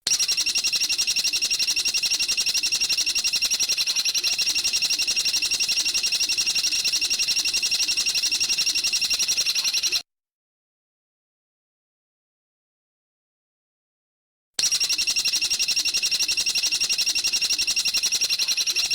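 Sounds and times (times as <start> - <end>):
recorded bird chirping: 0.0 - 10.0, 14.6 - 18.9.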